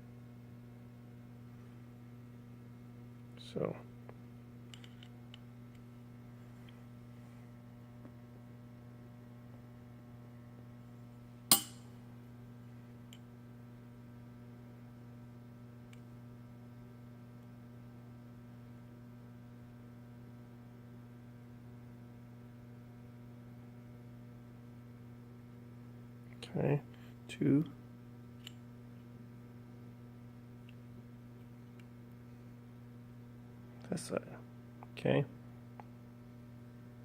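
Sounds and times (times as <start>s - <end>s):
low electrical hum: 0.0s - 37.0s
sharp metal click: 11.5s - 11.9s.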